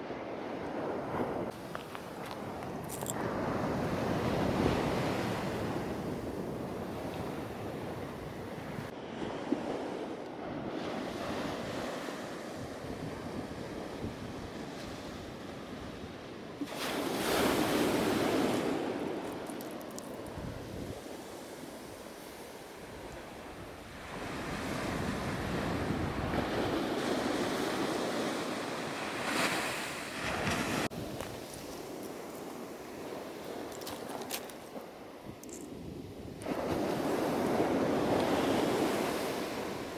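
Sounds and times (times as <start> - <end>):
ocean surf washing on beach: 0.0 - 39.9
wind buffeting microphone: 20.1 - 28.5.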